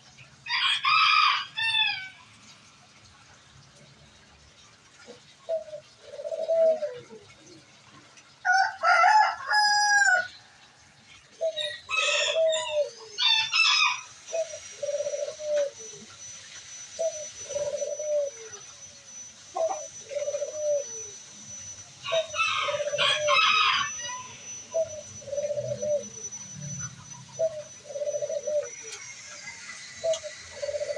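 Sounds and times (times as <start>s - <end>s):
rooster crowing: 0.5s - 2.2s, 8.4s - 10.4s, 11.6s - 14.2s, 22.0s - 24.7s
pigeons cooing: 3.7s - 30.9s.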